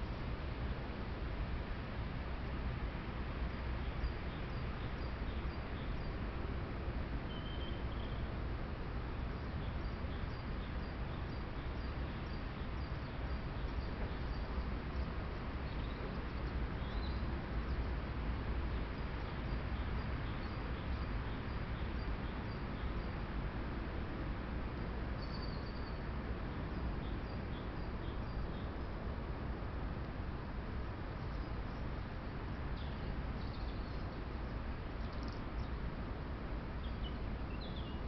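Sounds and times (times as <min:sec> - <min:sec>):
small birds chirping: 0:09.3 - 0:18.0, 0:25.2 - 0:26.0, 0:32.8 - 0:35.8, 0:36.8 - 0:38.0.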